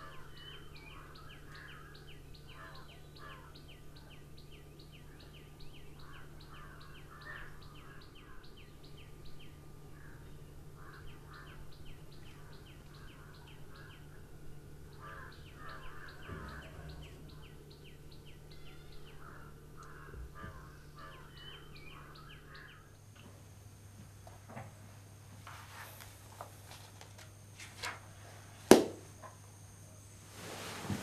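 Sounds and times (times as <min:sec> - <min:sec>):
birds chirping: 0:00.0 - 0:24.0
steady low hum: 0:00.0 - 0:31.0.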